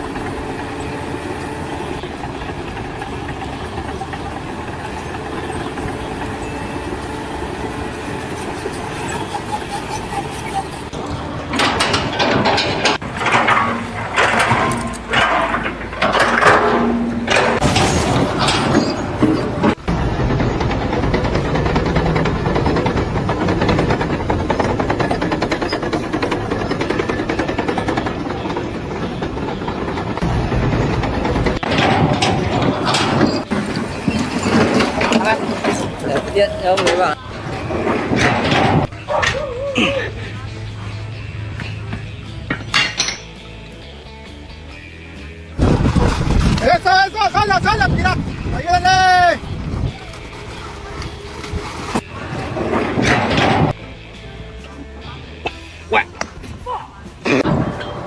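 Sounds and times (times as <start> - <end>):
machine engine running: 0.0 - 39.2
dense mechanical rattling: 0.0 - 55.5, 57.0 - 58.0.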